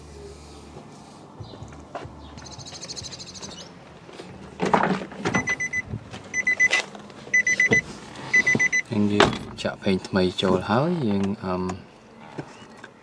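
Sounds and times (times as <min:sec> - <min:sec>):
trilling two-pitched warning beep: 0:05.5 - 0:06.8, 0:07.4 - 0:08.9.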